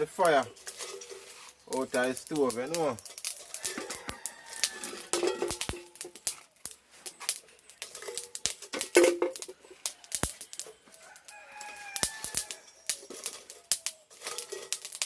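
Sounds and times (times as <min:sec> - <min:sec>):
rooster crowing: 0:03.4 - 0:05.8, 0:09.7 - 0:13.7.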